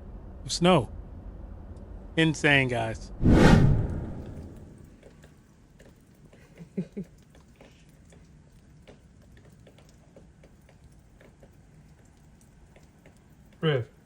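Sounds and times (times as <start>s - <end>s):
faint clicks and taps: 4.9s - 14.0s.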